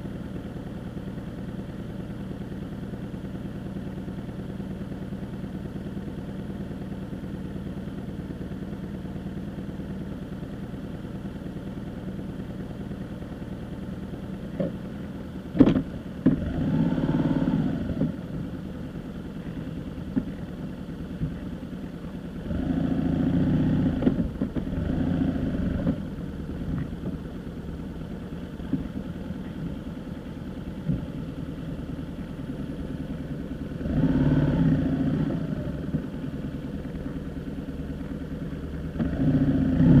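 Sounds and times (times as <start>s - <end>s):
vehicle engine running: 0.0s - 40.0s.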